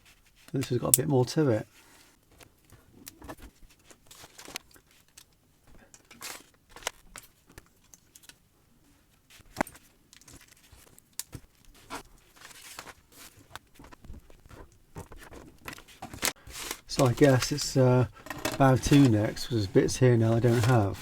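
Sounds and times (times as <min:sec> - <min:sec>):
rustling: 0:09.3 - 0:21.0.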